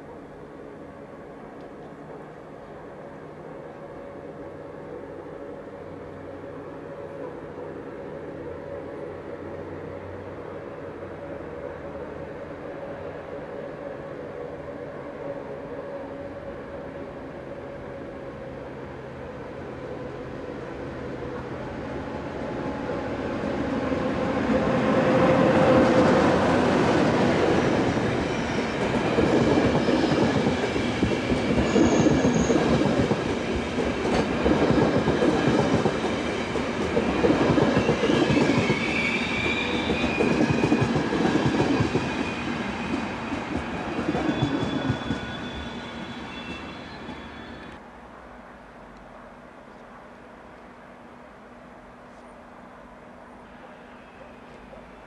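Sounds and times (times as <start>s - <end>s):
passenger train passing: 0.0s - 55.0s
high wheel squeals: 31.5s - 32.7s, 37.8s - 40.4s, 42.0s - 47.8s.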